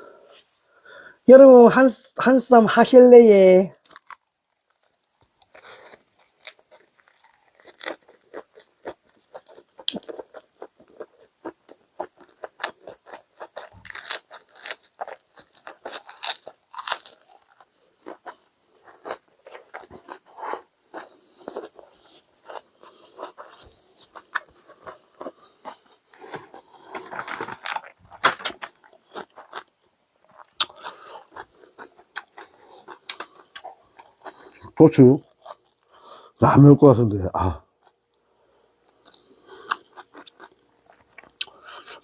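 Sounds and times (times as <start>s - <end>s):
crunching and chewing lettuce: 3.8s - 36.0s, 38.9s - 42.0s.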